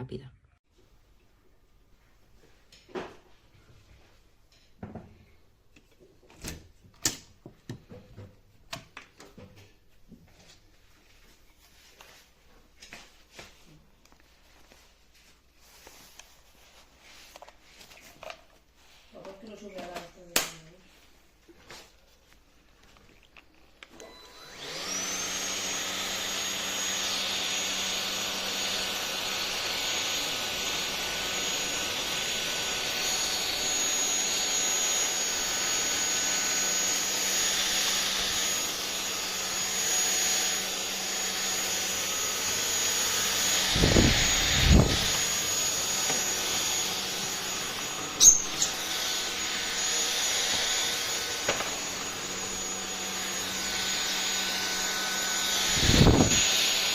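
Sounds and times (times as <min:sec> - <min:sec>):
stick vacuum motor whine: 0:23.8 - 0:56.9.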